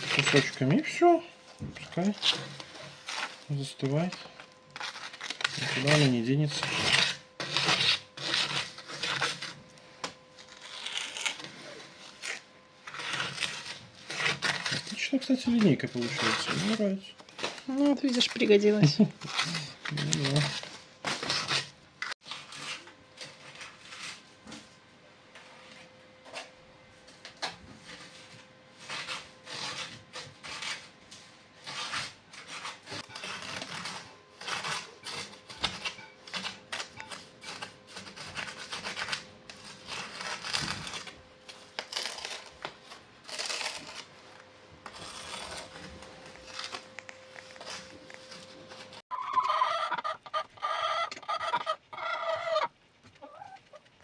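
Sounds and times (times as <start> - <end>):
hens clucking: 49.1 - 53.9.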